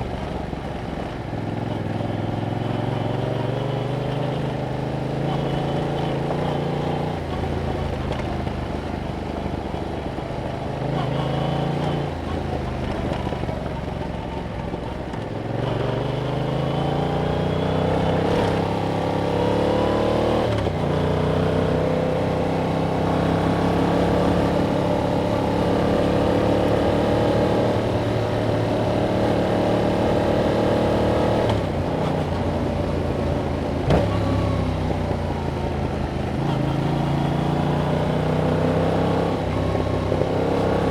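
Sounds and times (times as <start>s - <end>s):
motorcycle engine revving: 1.5s - 9.6s, 10.4s - 14.4s, 15.2s - 40.9s.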